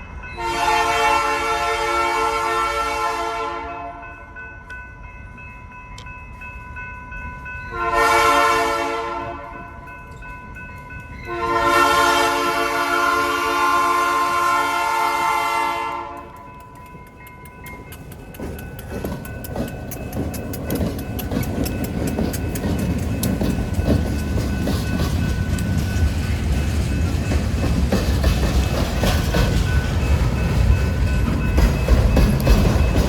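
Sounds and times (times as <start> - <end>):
freight train horn: 0.4 - 4.2, 7.7 - 9.8, 11.2 - 16.6
locomotive rumble: 8.0 - 33.0
train wheels clicking over rail joints: 16.0 - 33.0.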